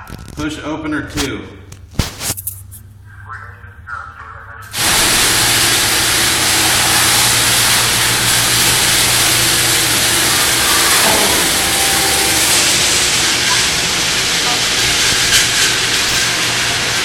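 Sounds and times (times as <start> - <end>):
garage door moving: 4.8 - 16.6
garage door opener motor hum: 4.8 - 17.0.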